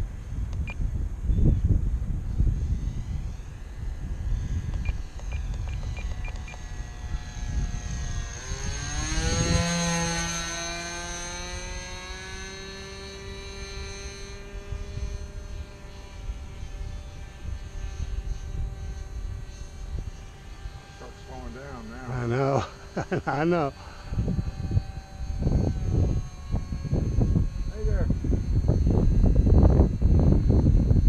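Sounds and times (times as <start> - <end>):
model airplane engine flying past: 0.0 - 31.0.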